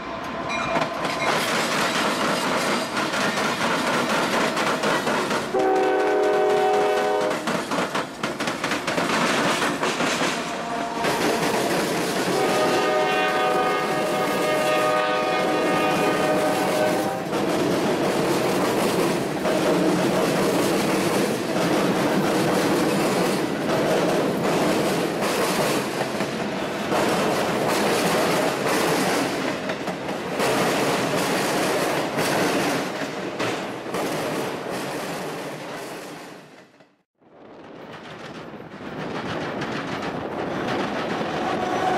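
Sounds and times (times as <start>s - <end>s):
train wheels clicking over joints: 0.6s - 37.0s, 37.7s - 41.9s
locomotive horn chord: 5.5s - 7.3s, 12.3s - 17.2s.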